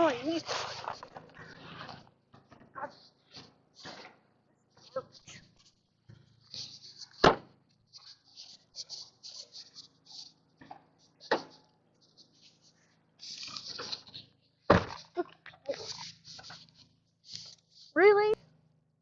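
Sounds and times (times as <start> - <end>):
garbage bags rustling: 0.0 - 2.0.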